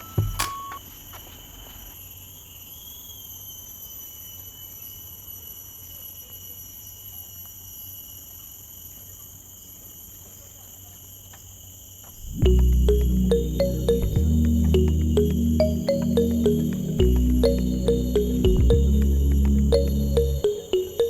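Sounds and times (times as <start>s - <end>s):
shrill insect chorus: 0.9s - 9.4s
low rumble: 12.2s - 20.4s.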